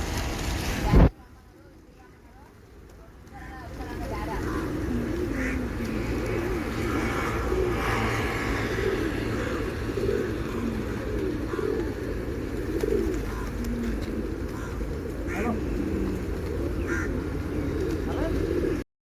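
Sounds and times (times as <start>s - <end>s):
pigeons cooing: 2.5s - 18.8s.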